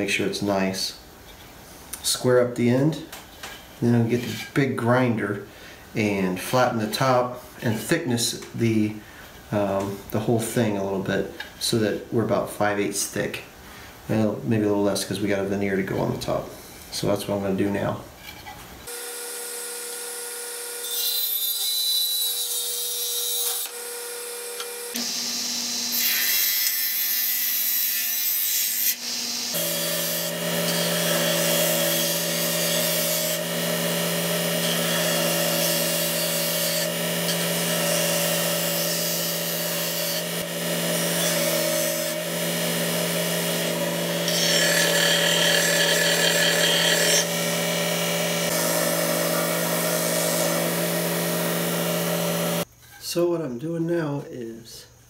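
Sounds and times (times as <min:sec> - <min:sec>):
sander motor hum: 0:29.0 - 0:52.6.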